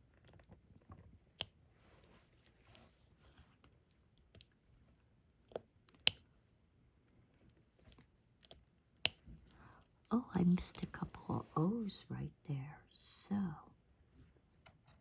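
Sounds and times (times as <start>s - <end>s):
soft rustle: 0.0s - 5.1s.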